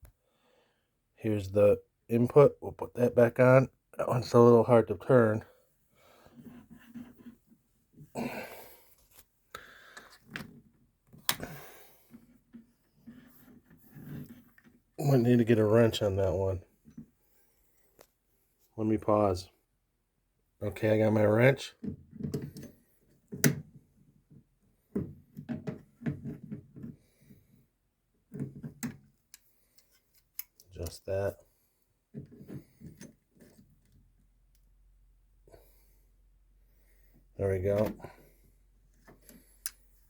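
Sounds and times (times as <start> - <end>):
man breathing out hard: 8.1 - 9.0, 9.6 - 10.2.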